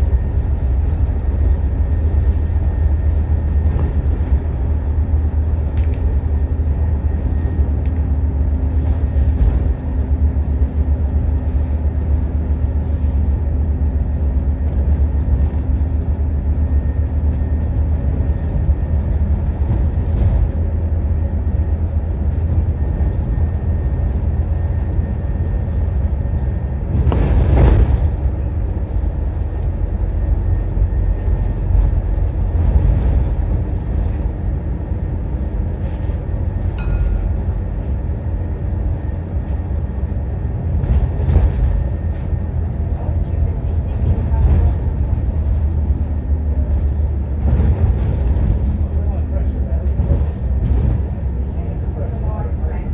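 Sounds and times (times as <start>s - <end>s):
bus engine and road noise: 0.0s - 52.9s
steady drone: 36.5s - 40.3s.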